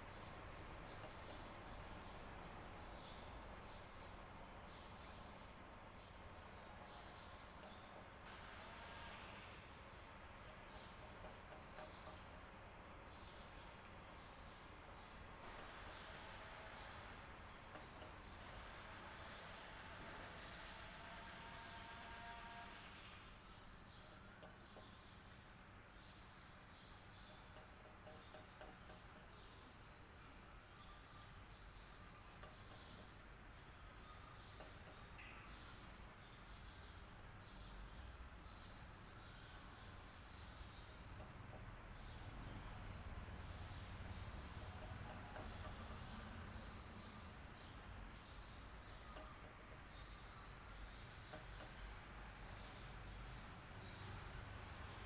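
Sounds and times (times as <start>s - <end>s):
high-pitched insect trill: 0.0s - 55.0s.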